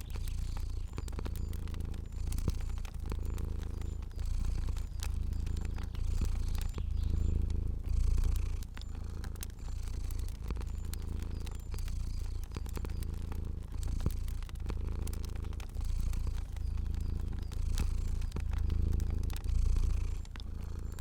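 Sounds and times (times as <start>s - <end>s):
cat purring: 0.0s - 21.0s
fire crackling and popping: 0.0s - 21.0s.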